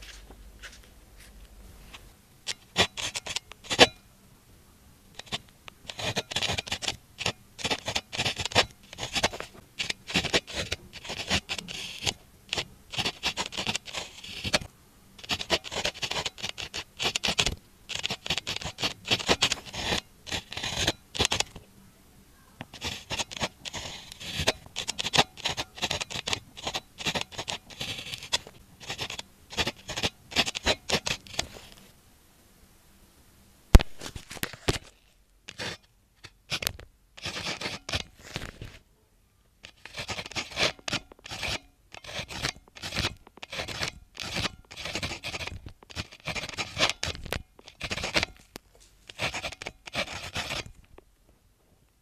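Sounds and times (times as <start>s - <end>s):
pen scratching on paper: 2.5s - 4.0s, 5.2s - 21.6s, 22.6s - 31.8s, 35.5s - 38.8s, 39.6s - 48.5s, 49.1s - 50.8s.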